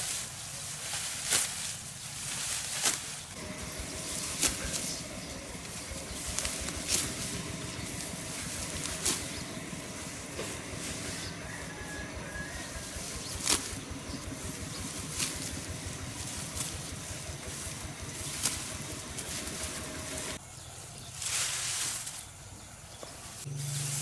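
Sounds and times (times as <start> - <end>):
sickle snipping rice stalks: 0.0 - 20.4, 21.0 - 24.0
rustle of stalks: 0.0 - 24.0
steady low hum: 3.2 - 20.4.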